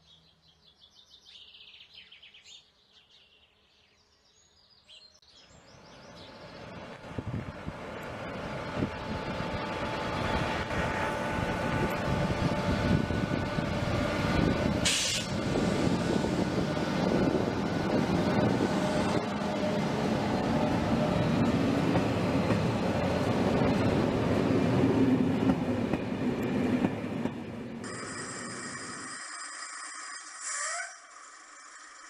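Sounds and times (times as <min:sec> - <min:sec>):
train rumbling past: 0:05.5 - 0:32.0
short high hiss: 0:14.8 - 0:15.4.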